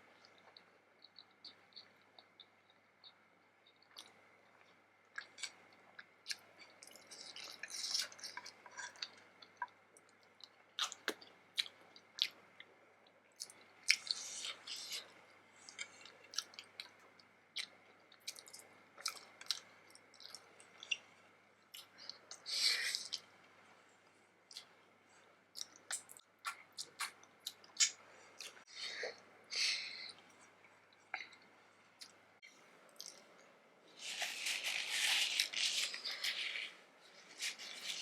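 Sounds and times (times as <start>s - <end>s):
person chewing food: 0.2s - 12.5s, 13.4s - 23.3s, 25.5s - 33.4s.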